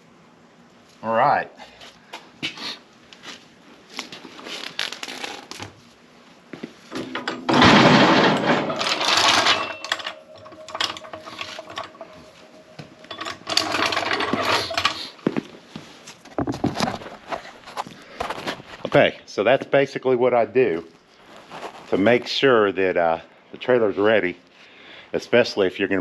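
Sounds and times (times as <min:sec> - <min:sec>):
hand tools clinking and rattling: 0:06.9 - 0:15.2.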